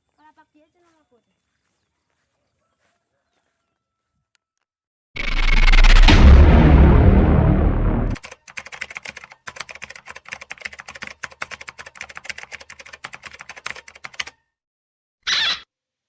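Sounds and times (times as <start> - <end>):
loud noisy blast: 5.2 - 8.2.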